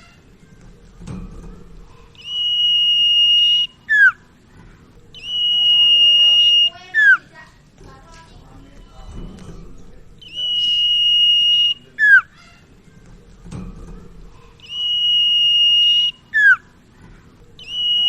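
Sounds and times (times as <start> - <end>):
songbird whistling: 2.1 - 4.3, 5.1 - 7.4, 10.2 - 12.6, 14.6 - 16.8, 17.6 - 18.0.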